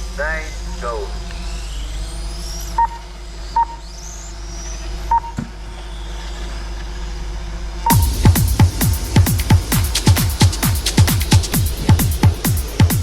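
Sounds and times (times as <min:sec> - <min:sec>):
rc motorbike motors whining: 0:00.0 - 0:08.0
steady low hum: 0:00.0 - 0:13.0.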